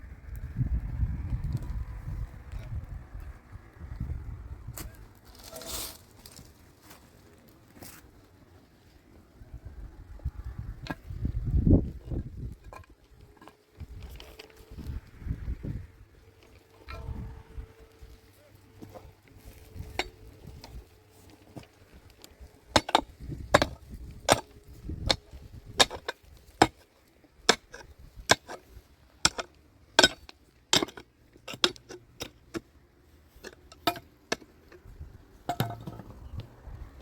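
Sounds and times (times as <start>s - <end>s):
hand tool striking hard material: 22.7s - 32.7s, 33.4s - 34.6s.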